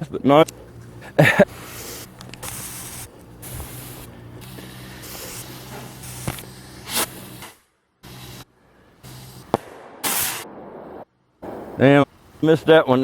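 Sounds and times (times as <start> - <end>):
firework rockets hissing: 0.6 - 12.5
sharp pop: 9.5 - 11.9.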